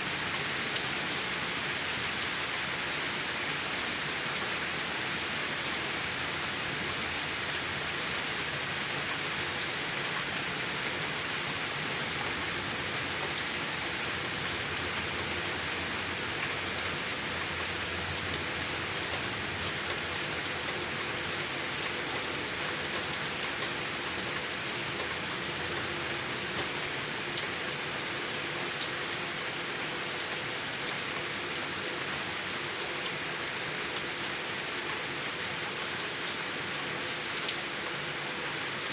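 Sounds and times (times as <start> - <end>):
rain falling: 0.0 - 38.9
rainwater running and gurgling: 0.0 - 38.9.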